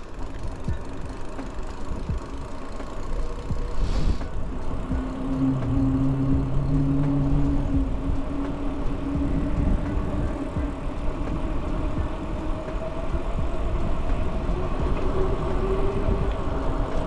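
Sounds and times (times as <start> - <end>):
low traffic rumble: 0.0 - 17.0
vehicle engine humming: 0.0 - 17.0
brief hiss: 3.8 - 4.3.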